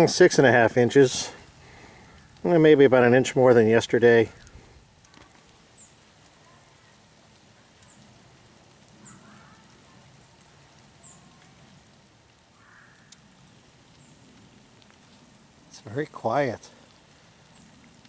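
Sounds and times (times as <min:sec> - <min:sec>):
faint patter of falling snow: 0:00.0 - 0:18.0
high falling bird chirps: 0:09.0 - 0:09.8, 0:10.9 - 0:11.7.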